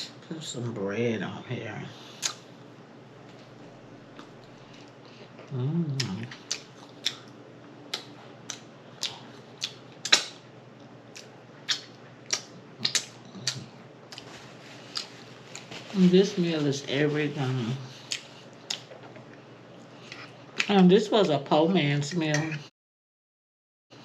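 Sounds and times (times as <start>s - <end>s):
lip smacks and chewing: 4.1s - 14.3s, 14.9s - 15.7s, 18.0s - 20.7s
person humming: 5.5s - 6.3s.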